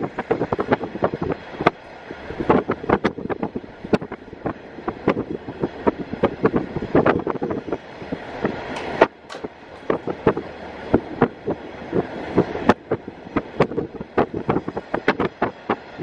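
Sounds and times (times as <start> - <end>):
railcar running noise: 0.0 - 16.0
wind: 0.0 - 16.0
train wheels clattering on track: 8.7 - 10.0.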